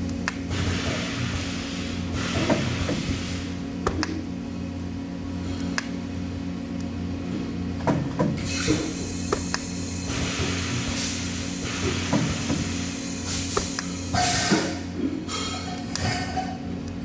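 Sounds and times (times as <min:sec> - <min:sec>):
workshop machinery humming: 0:00.0 - 0:17.0
hiss: 0:08.5 - 0:15.5.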